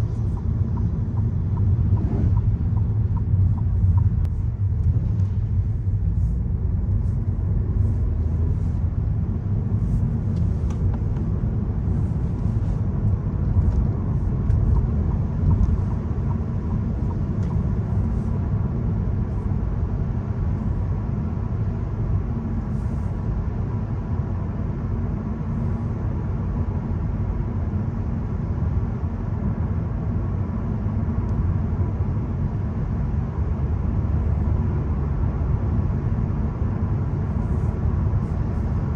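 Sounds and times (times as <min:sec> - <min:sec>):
tyre and road noise: 0:00.0 - 0:19.0
car engine under light load: 0:00.0 - 0:38.9.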